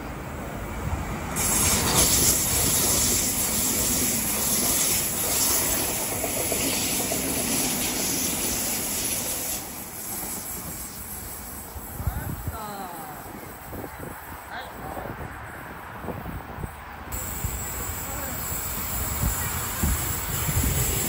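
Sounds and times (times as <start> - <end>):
train passing at speed: 0.0 - 21.0.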